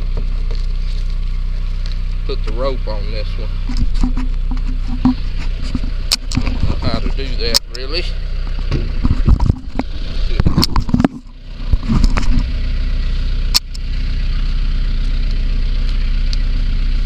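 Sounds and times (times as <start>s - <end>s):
vehicle engine idling: 0.0s - 17.0s
knocks and rattles: 3.6s - 7.2s, 8.6s - 12.5s
sharp click: 13.5s - 13.8s.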